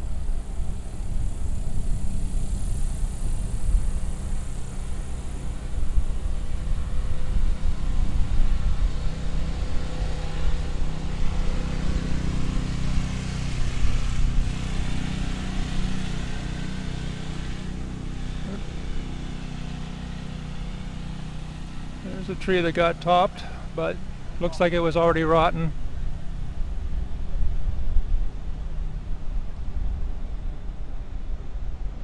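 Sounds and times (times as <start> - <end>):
wind buffeting microphone: 0.0 - 16.1.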